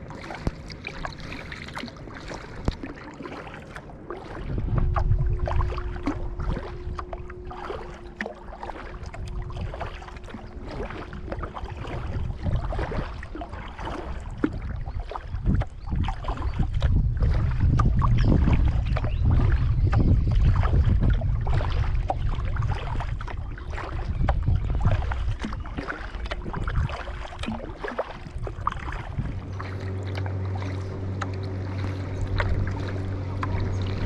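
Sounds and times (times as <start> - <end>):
water splashing around kayak: 0.0 - 34.0
wind buffeting microphone: 0.0 - 34.0
steady hum: 28.2 - 34.0.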